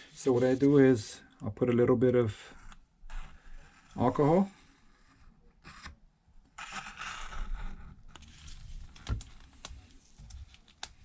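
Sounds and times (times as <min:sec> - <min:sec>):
scratchy scraping: 0:06.6 - 0:08.7.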